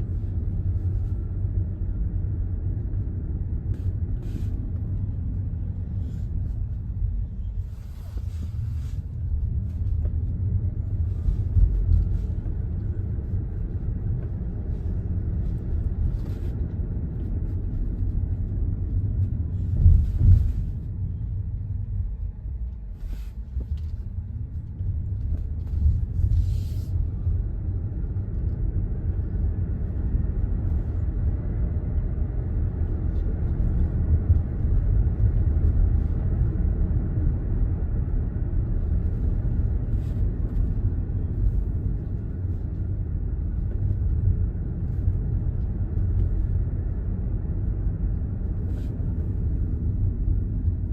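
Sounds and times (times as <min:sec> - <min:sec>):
road and tyre rumble: 0:00.0 - 0:50.9.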